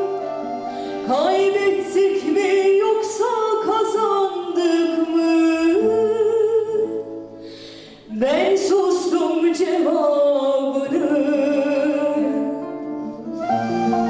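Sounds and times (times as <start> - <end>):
person singing long notes: 8.1 - 14.0.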